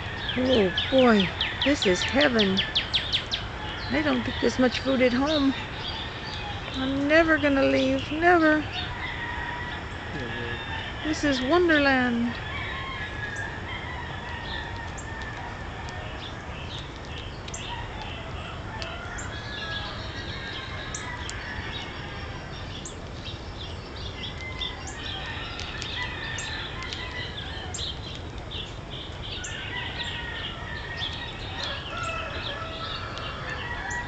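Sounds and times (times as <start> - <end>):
chickens or rooster calling: 0.0 - 2.8, 3.4 - 16.6, 17.6 - 22.7, 24.2 - 28.0, 29.3 - 34.0
small birds chirping: 0.0 - 34.0.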